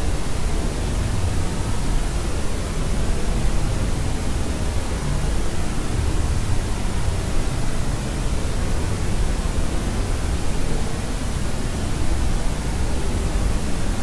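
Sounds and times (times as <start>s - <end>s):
white noise hiss: 0.0s - 14.0s.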